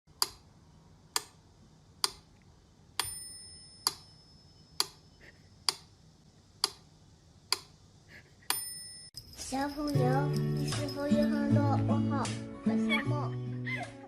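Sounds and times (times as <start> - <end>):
short bell-like ring: 8.5 - 11.5.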